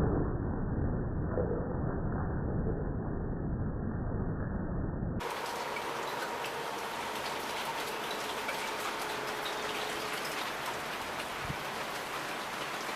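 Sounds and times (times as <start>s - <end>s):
heavy rain pouring: 5.2s - 12.9s.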